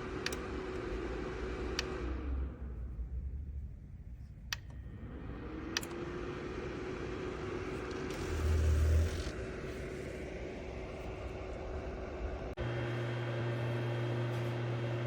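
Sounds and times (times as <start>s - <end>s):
heater clicks: 0.0s - 2.3s, 4.5s - 6.2s
heater fan hum: 0.0s - 15.0s
low rumble: 7.5s - 12.6s.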